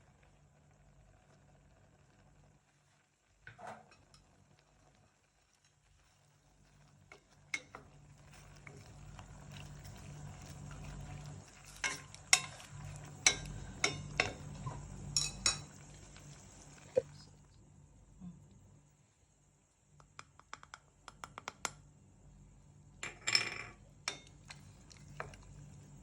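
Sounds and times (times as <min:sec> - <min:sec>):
food cooking in a pan: 0:00.0 - 0:17.8, 0:23.8 - 0:26.0
utensil stirring food: 0:03.9 - 0:17.2, 0:24.0 - 0:26.0.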